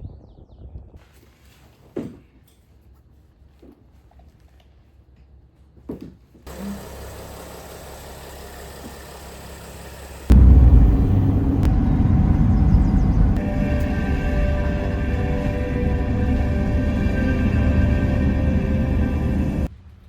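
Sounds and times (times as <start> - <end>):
steady engine hum: 6.5 - 20.0
loud sound: 10.3 - 19.7.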